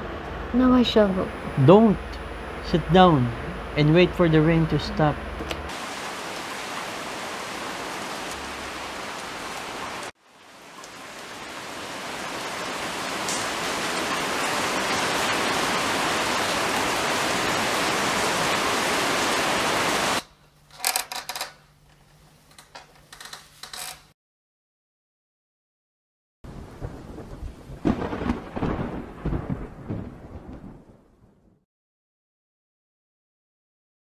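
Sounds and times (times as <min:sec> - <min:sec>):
heavy rain: 0:00.0 - 0:21.6, 0:26.5 - 0:31.0.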